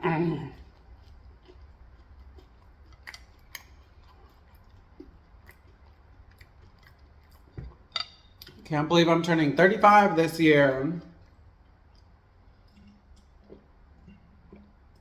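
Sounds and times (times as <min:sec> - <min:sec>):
low steady hum: 0:00.0 - 0:15.0
chewing mouth clicks and smacks: 0:00.5 - 0:08.6, 0:11.0 - 0:15.0.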